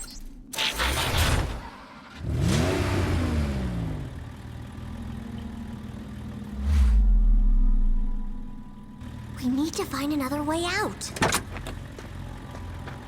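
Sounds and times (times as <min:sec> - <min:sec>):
engine-like sweeping sound: 0:04.9 - 0:09.4.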